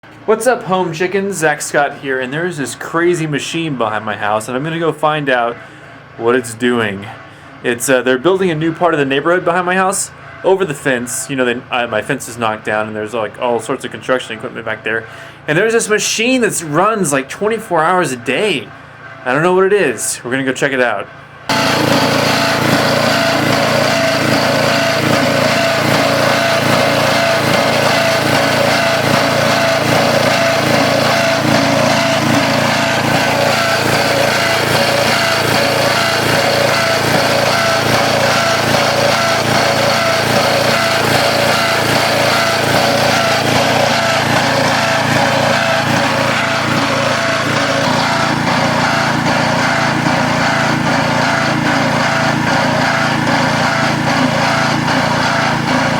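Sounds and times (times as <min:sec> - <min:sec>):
construction machine engine running: 0:21.0 - 0:55.9.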